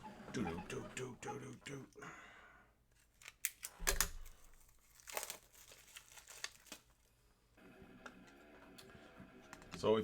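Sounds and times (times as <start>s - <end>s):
plastic crinkling: 3.0s - 7.1s.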